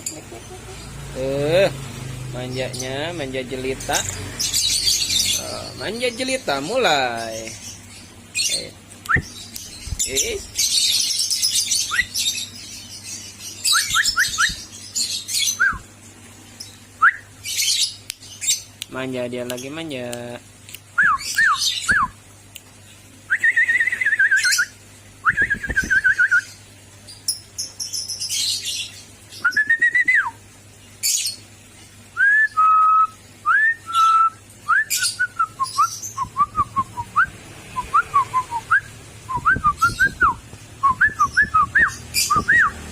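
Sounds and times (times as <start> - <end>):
bird whistling: 11.8 - 12.4, 13.6 - 14.7, 17.0 - 17.8, 23.3 - 26.5, 29.4 - 30.3, 32.2 - 42.8.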